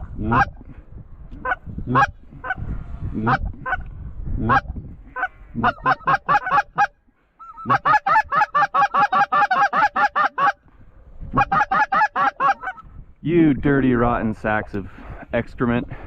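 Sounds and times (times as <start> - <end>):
goose honking: 4.5 - 10.6, 11.3 - 12.8.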